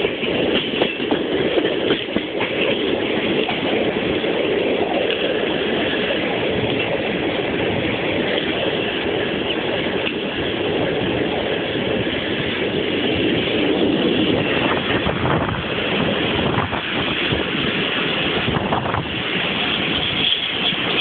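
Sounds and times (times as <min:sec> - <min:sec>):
train wheels rumbling on rail: 0:00.0 - 0:21.0
wind noise: 0:00.0 - 0:21.0.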